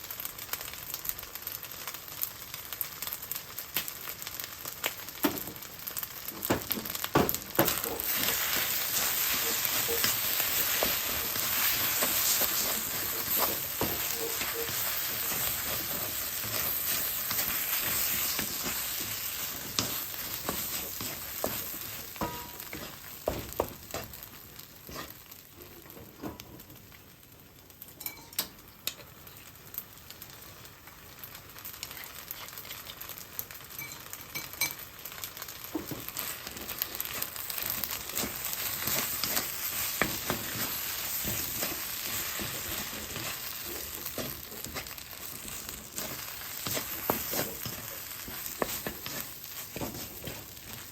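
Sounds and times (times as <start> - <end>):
rice sizzling in a frying pan: 0.0 - 50.9
spatula scraping the pan: 7.6 - 25.9, 36.1 - 50.9.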